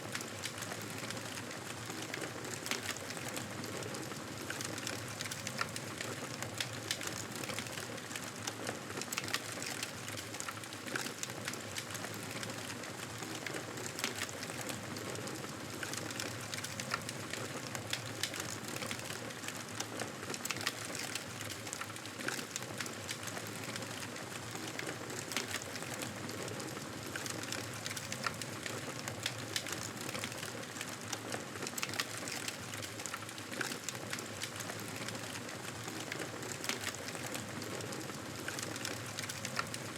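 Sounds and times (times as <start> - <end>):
campfire crackling: 22.8 - 30.8.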